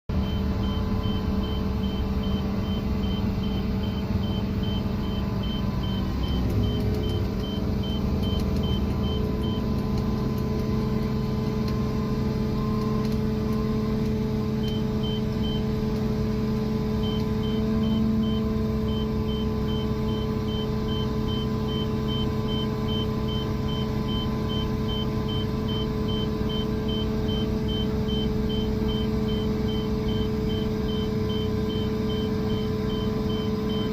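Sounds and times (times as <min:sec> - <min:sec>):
high-pitched warning beeper: 0:00.1 - 0:09.8
crane engine running: 0:00.1 - 0:33.9.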